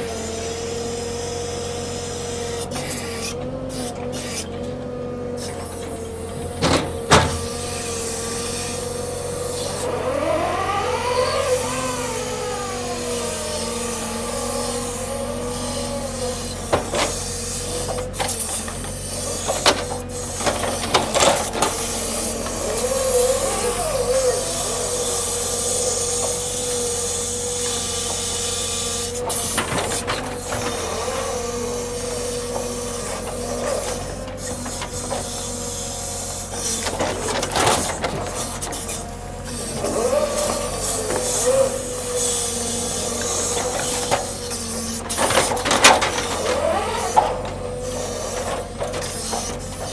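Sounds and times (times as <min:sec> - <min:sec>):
hydraulic machinery whining: 0:00.0 - 0:49.9
sharp knocks and clunks: 0:06.4 - 0:07.6.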